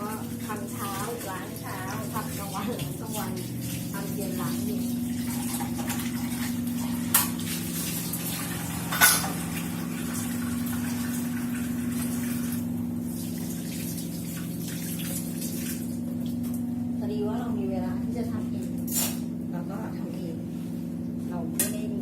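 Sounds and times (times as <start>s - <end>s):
tap water running: 0.0s - 17.0s
low even hum: 0.0s - 22.0s.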